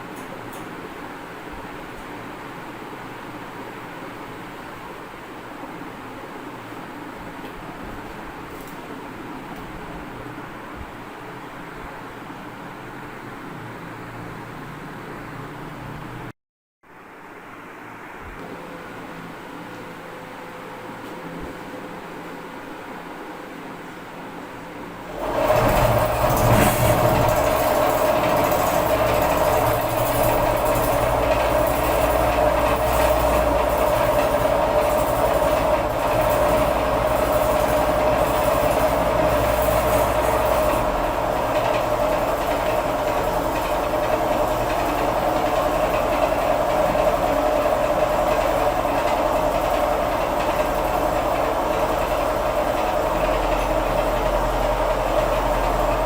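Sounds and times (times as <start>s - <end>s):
generator whine: 18.2s - 56.0s
mechanical rattle: 25.1s - 56.0s.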